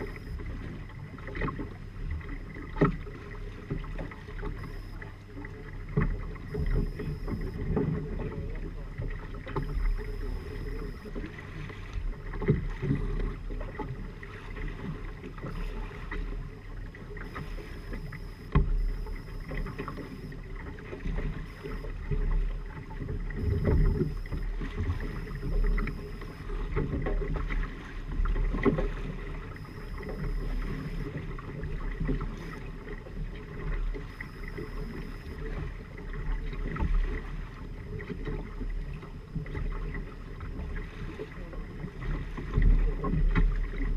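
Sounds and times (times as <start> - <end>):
water rushing along hulls: 0.0 - 43.9
steady low rumble: 3.4 - 27.4, 29.5 - 35.8.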